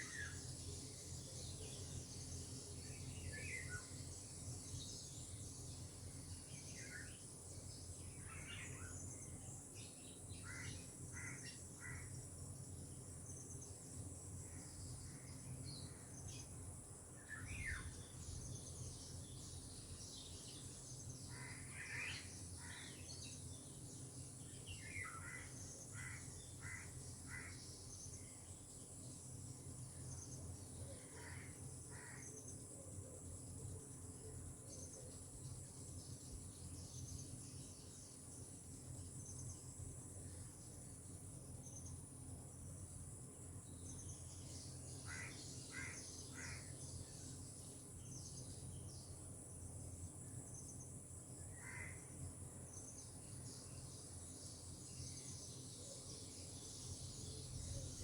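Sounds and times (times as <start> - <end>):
tropical birds calling: 43.8 - 48.8.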